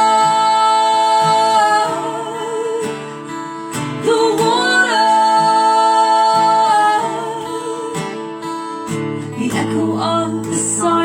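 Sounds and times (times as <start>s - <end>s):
person singing: 0.0s - 11.0s
strummed acoustic guitar: 0.0s - 11.0s.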